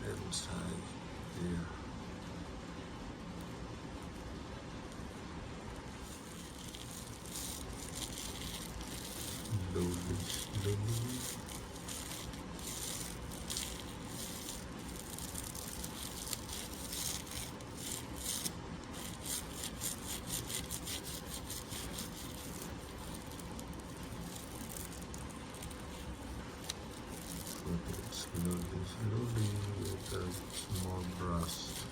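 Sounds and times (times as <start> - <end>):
ear-cleaning tool scraping: 6.1 - 25.0, 29.1 - 31.9.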